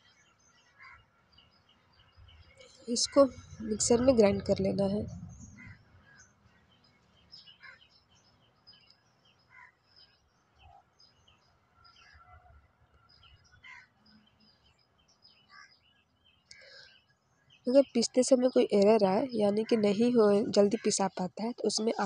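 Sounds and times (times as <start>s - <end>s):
faint bird chirps: 0.0s - 22.0s
soft low thuds: 3.2s - 6.0s.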